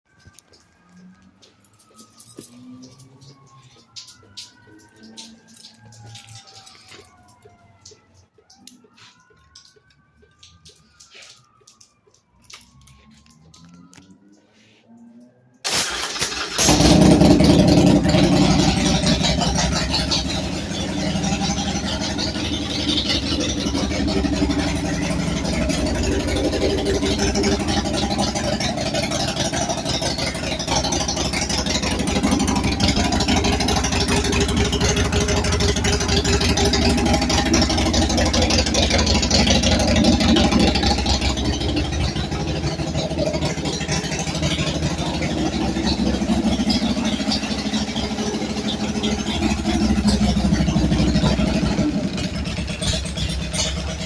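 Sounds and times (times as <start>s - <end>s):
motorcycle engine idling: 15.7s - 54.0s.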